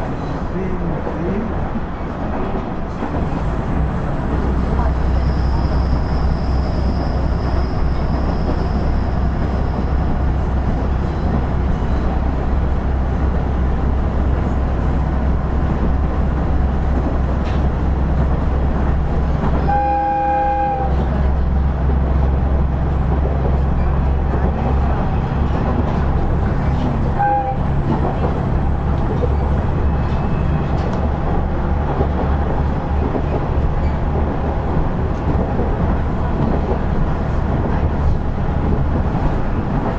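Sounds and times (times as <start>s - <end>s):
railcar engine drone: 0.0s - 39.9s
train horn: 19.6s - 21.2s, 27.0s - 28.2s
wheel and track noise: 20.9s - 39.9s.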